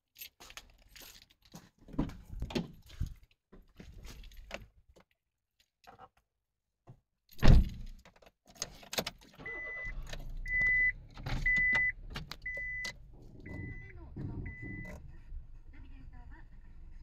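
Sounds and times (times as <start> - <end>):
loud thump: 7.4 - 7.8
electronic warning chime beeping: 12.5 - 15.0.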